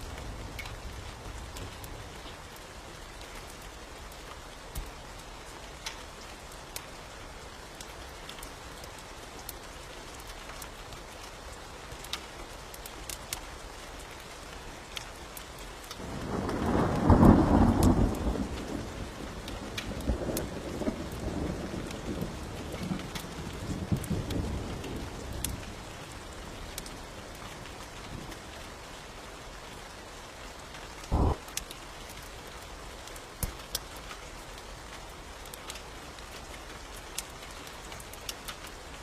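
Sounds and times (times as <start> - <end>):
steady rain: 0.0 - 39.0
rolling thunder: 16.0 - 25.6, 31.1 - 31.5.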